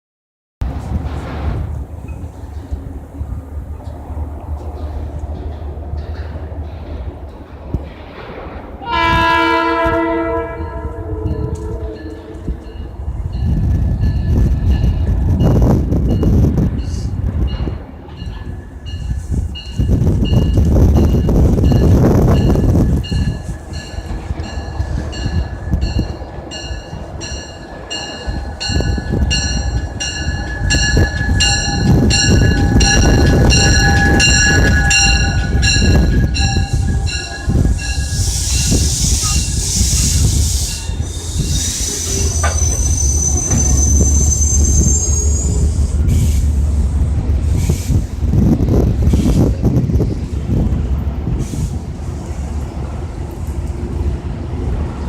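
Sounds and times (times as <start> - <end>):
passenger train rumbling: 0.6 - 55.0
bell ringing: 23.1 - 38.2
wheels squealing: 28.7 - 46.6.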